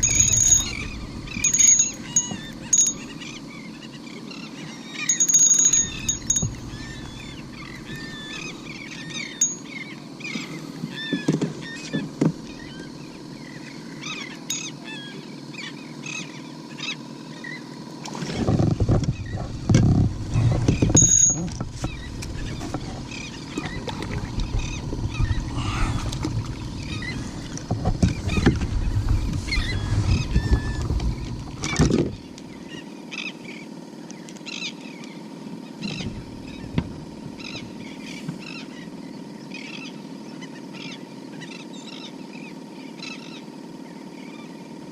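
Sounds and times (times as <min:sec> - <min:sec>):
low rumbling noise: 0:00.0 - 0:04.1, 0:18.4 - 0:32.7
birds chirping: 0:00.0 - 0:44.8
open water ambience: 0:00.0 - 0:44.9.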